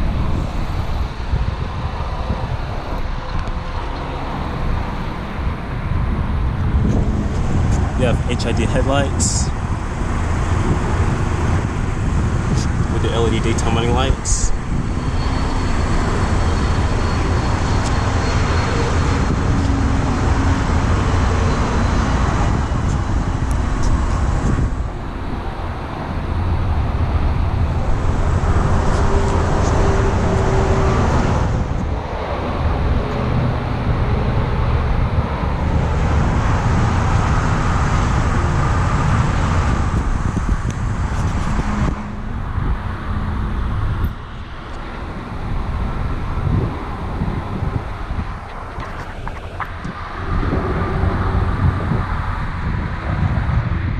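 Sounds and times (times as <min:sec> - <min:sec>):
road traffic passing: 0:00.0 - 0:53.9.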